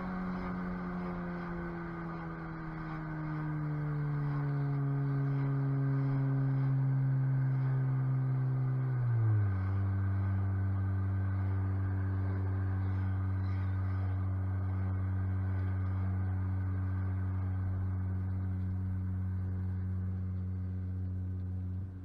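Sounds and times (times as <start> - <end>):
car engine droning inside cabin: 0.0 - 22.0.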